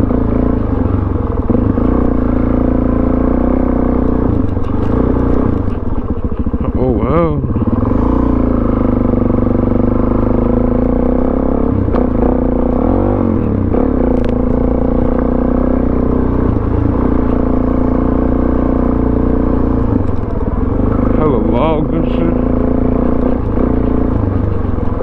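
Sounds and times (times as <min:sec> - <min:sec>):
motorcycle engine running: 0:00.0 - 0:25.0
sharp clattering clicks: 0:20.0 - 0:21.1.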